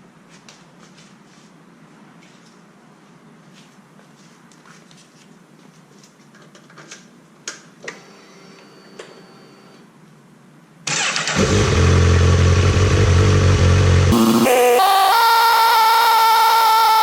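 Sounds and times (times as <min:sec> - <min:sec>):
motorcycle engine starting and idling: 0:10.9 - 0:14.2.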